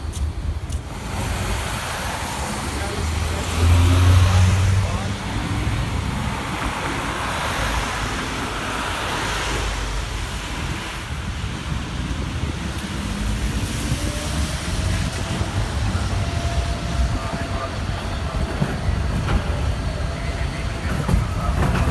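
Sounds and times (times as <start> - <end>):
tram rolling past: 0.0 - 21.9
tyres hissing on wet road: 0.0 - 21.9
wind rumble on microphone: 3.5 - 21.9.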